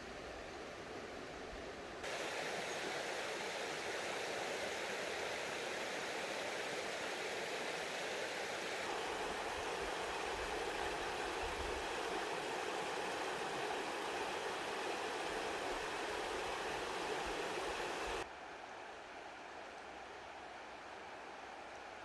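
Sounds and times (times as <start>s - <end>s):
stream rushing over rocks: 1.7s - 18.2s.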